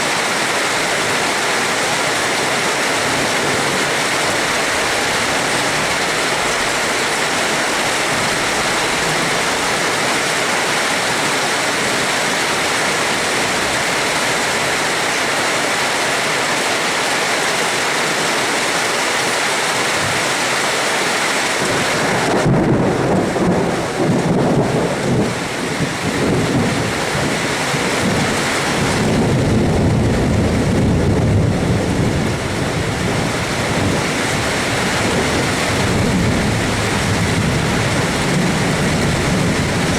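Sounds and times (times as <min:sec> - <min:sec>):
heavy rain hissing: 0:00.0 - 0:39.9
rolling thunder: 0:21.6 - 0:39.9.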